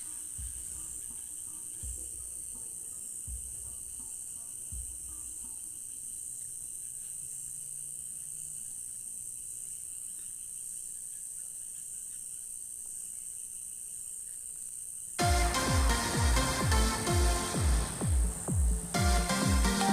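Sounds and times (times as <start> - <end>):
crickets and insects trilling: 0.0 - 15.2.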